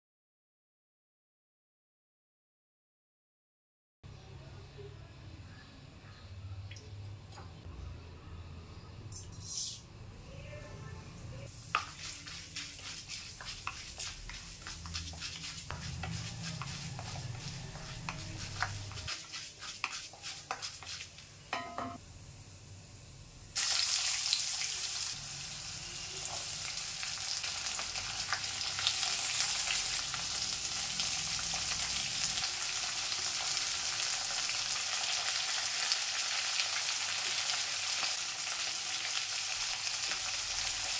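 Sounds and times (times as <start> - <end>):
lentils crackling and popping in oil: 11.4 - 21.5, 23.6 - 40.9
wooden spatula stirring: 11.5 - 21.3
loud steady sizzle: 21.2 - 40.9.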